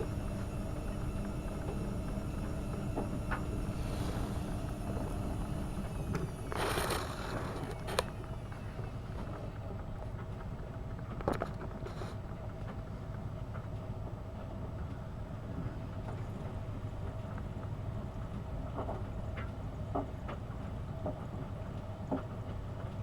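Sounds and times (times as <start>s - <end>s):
washing machine rush: 0.0s - 12.1s
washing machine humming: 0.0s - 23.0s.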